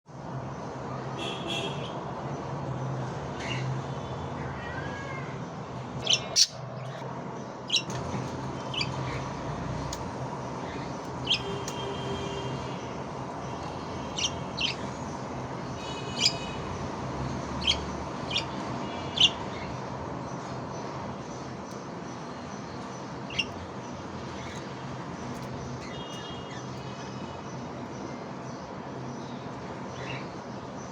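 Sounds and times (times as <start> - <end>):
budgerigar chirping: 6.0 - 6.6, 16.0 - 16.4, 23.3 - 23.6.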